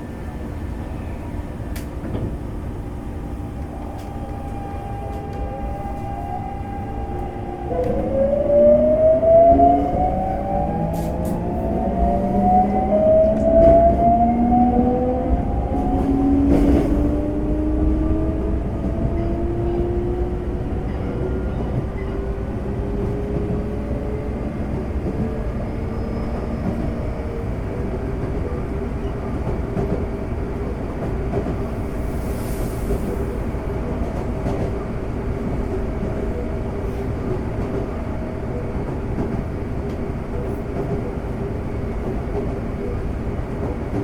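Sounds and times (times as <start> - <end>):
electric train inverter whine: 0.0 - 29.4
train rumbling on rails: 0.0 - 44.0.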